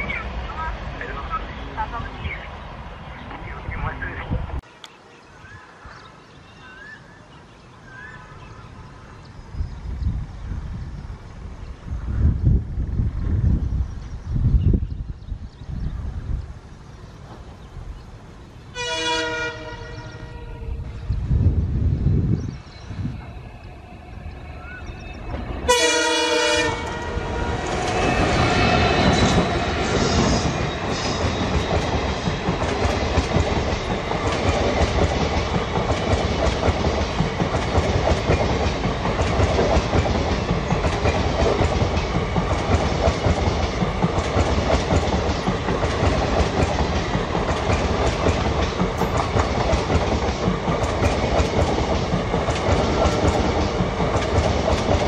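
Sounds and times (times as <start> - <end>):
locomotive horn blast: 18.7 - 20.8, 25.6 - 29.0
train wheels clattering on rails: 24.9 - 55.0.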